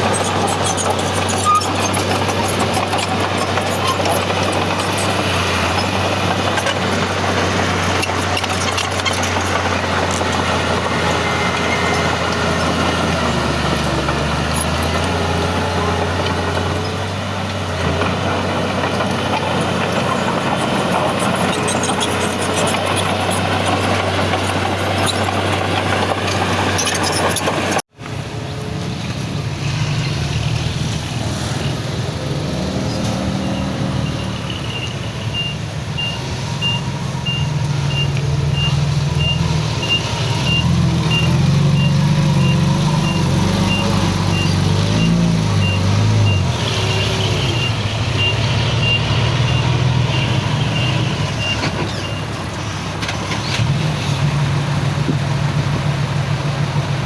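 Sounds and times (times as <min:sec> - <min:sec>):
heavy diesel machinery running: 0:00.0 - 0:57.0
reversing alarm beeping: 0:33.4 - 0:52.3.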